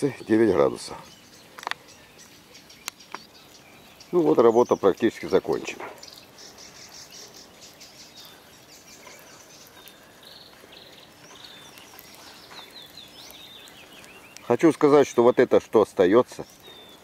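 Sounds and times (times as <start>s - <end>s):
birds chirping and singing: 0.0s - 17.0s
faint outdoor background: 0.0s - 17.0s.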